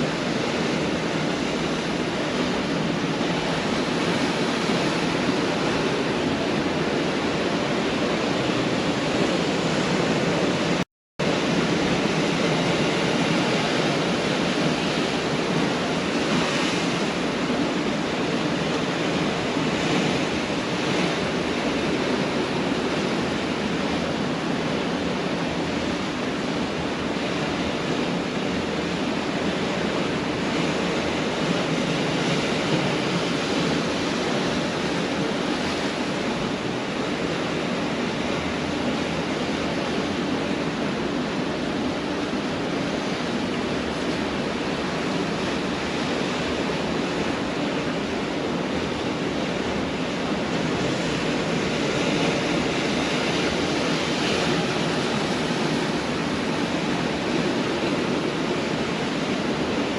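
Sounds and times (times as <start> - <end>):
waves breaking on beach: 0.0 - 59.9.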